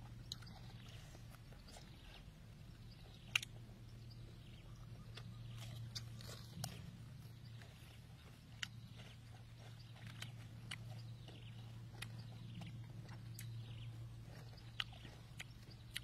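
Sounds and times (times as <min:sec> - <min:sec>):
chewing mouth clicks and smacks: 0:00.0 - 0:16.0
steady low hum: 0:00.0 - 0:16.0.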